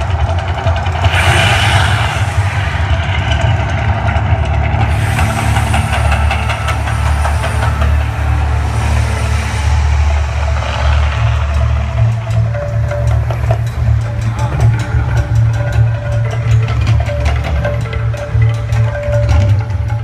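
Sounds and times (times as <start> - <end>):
deep continuous rumble: 0.0 - 20.0
hissing surges: 1.0 - 13.0.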